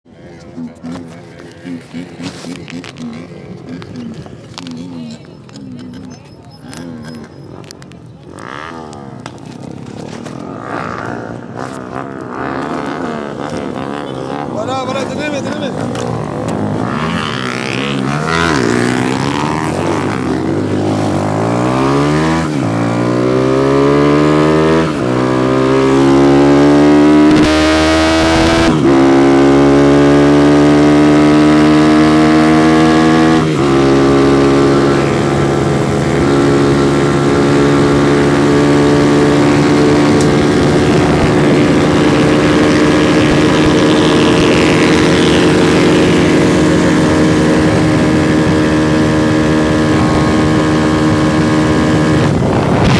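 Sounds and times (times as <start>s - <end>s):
motorcycle accelerating through gears: 0.1s - 52.9s
rush of noise: 31.2s - 52.9s.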